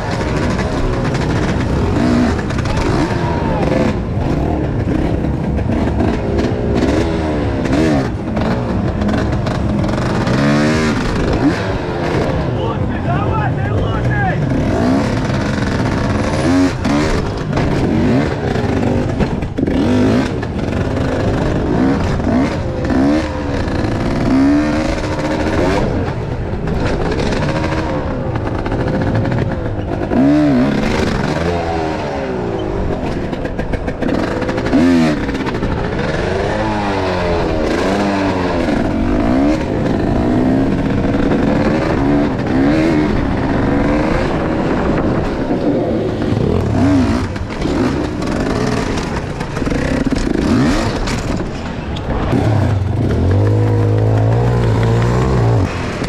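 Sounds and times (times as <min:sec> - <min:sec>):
knocks and clatter: 0:00.0 - 0:03.2, 0:13.2 - 0:56.0
motorcycle engine revving: 0:00.0 - 0:56.0.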